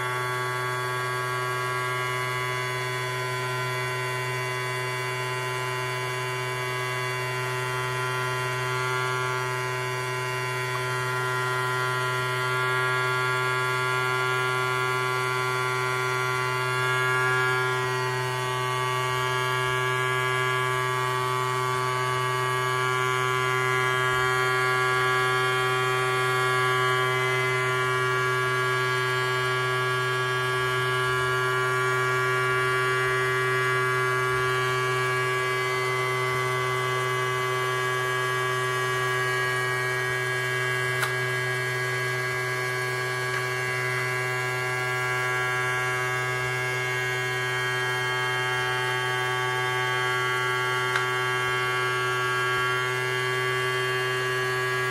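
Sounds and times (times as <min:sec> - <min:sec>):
toy vacuum motor humming: 0:29.5 - 0:54.9.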